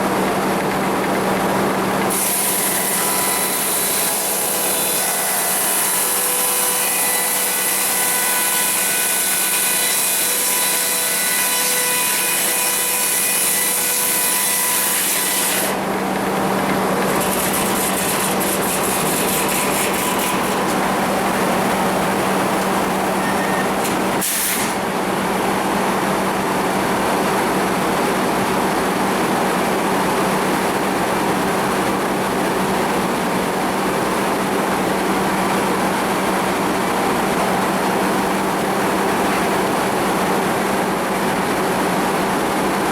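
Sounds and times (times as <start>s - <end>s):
mill machinery humming: 0.0s - 42.9s
saw cutting through log: 2.0s - 25.0s.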